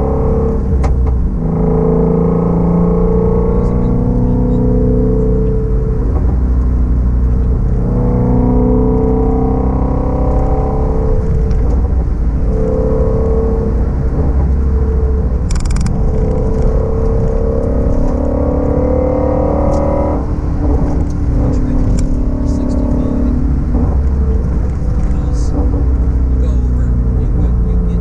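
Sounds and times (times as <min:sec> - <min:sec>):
car engine revving gently: 0:15.5 - 0:28.0.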